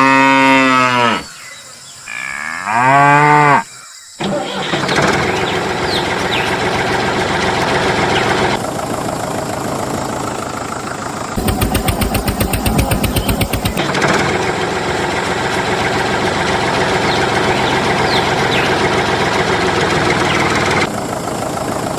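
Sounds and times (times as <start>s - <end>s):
cow mooing: 0.0s - 1.4s, 2.1s - 3.7s
rough mechanical running noise: 4.2s - 21.9s.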